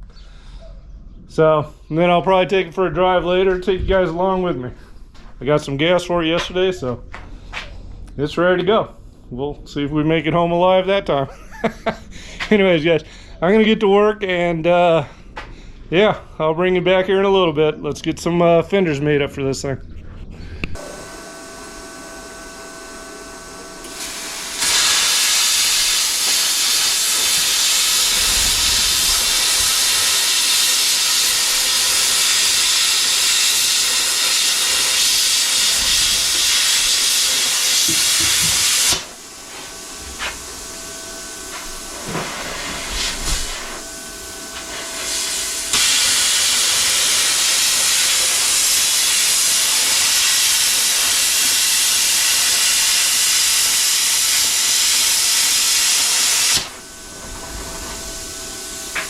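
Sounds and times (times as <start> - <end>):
loud steady hiss: 20.8 - 59.0.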